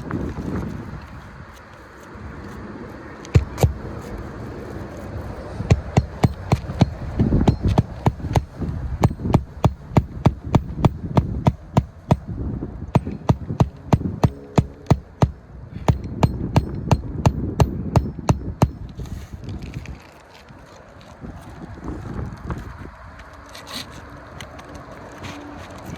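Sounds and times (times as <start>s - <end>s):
rapid sharp knocks: 3.4s - 3.8s, 5.7s - 12.3s, 12.9s - 18.9s.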